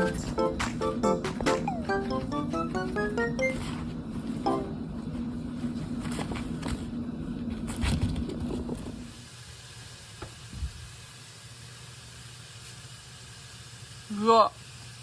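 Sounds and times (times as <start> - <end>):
background music held note: 0.0 - 3.8, 4.4 - 5.0.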